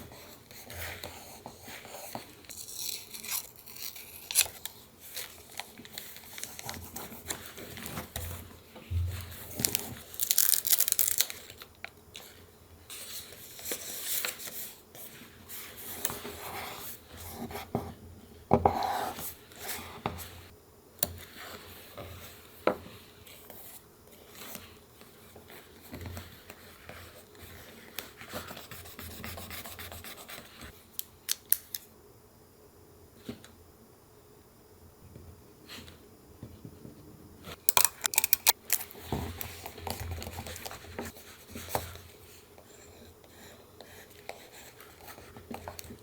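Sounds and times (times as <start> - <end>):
scissors cutting paper: 2.5 - 4.8
paper rustling: 9.0 - 11.6.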